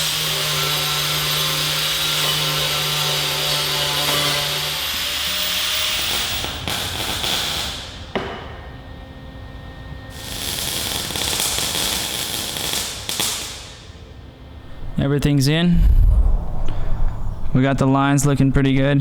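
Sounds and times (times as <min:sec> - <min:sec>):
angle grinder grinding metal: 0:00.0 - 0:07.8.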